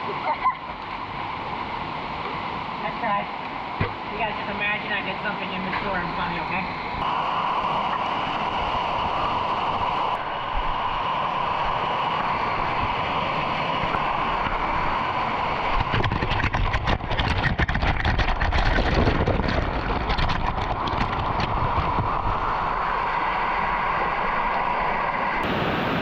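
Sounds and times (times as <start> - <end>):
low rumbling: 3.7 - 26.0
waterfall rushing: 4.0 - 16.0, 21.6 - 26.0.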